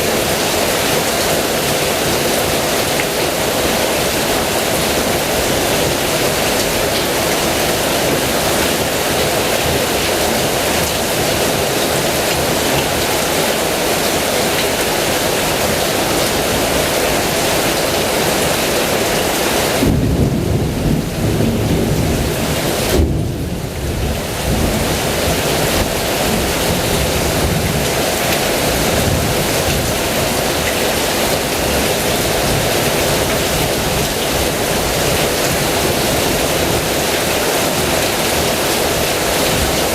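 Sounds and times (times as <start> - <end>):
heavy rain pouring: 0.0 - 39.9
thunder rumbling: 19.8 - 28.0.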